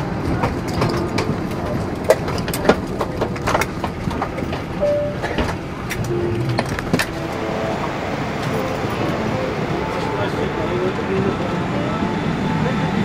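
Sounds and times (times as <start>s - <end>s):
airliner cabin hum: 0.0s - 13.0s
brief tone: 4.8s - 5.4s, 6.0s - 10.7s.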